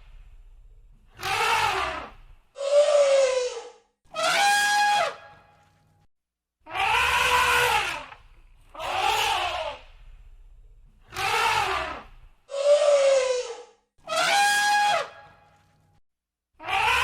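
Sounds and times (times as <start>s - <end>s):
elephant trumpeting: 1.1s - 5.4s, 6.7s - 10.0s, 11.1s - 15.3s.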